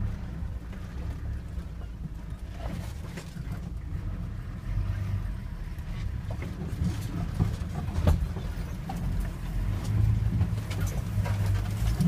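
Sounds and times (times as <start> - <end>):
engine running under load: 0.0 - 12.0
body knocks and rattles: 6.2 - 12.0.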